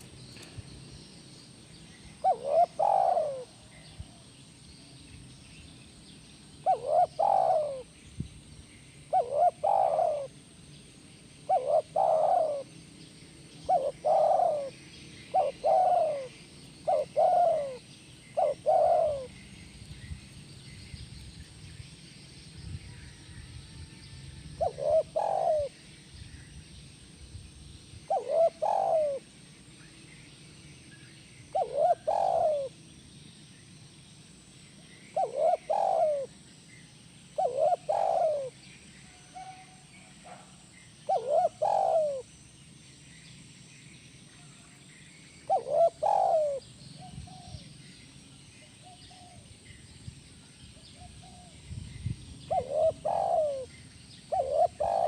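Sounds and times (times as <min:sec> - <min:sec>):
dove cooing: 0:02.2 - 0:04.2, 0:06.6 - 0:07.9, 0:09.1 - 0:10.4, 0:11.4 - 0:12.8, 0:13.5 - 0:19.5, 0:24.6 - 0:25.8, 0:28.1 - 0:29.3, 0:31.5 - 0:32.8, 0:35.1 - 0:36.4, 0:37.4 - 0:38.6, 0:39.3 - 0:42.3, 0:45.4 - 0:47.6, 0:52.5 - 0:55.0.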